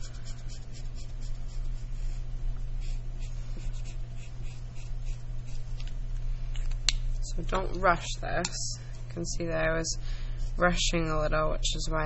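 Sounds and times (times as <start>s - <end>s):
felt-tip marker scratching on paper: 0.0s - 2.2s, 2.8s - 5.6s
steady low hum: 0.0s - 12.0s.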